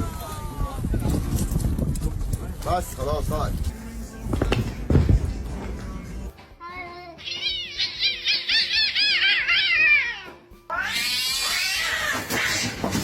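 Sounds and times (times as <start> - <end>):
animal high-pitched calls: 7.2 - 12.9.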